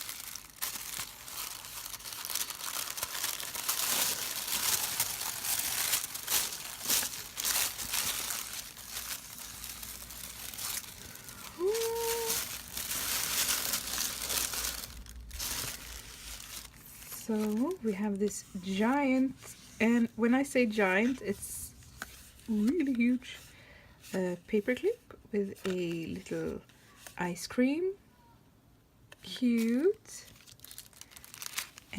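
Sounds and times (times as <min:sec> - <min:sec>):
paper packaging crinkling: 0:00.0 - 0:19.0, 0:29.5 - 0:31.9.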